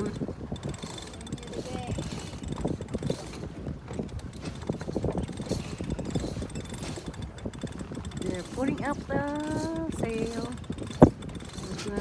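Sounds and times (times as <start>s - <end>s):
sailboat rigging knocking and rattling: 0.0s - 12.0s.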